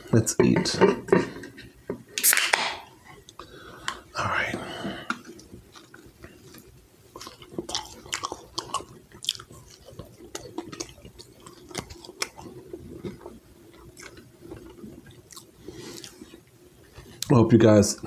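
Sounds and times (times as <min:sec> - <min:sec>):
person chewing crunchy food: 0:05.0 - 0:17.3
wet mouth sounds: 0:05.1 - 0:16.5.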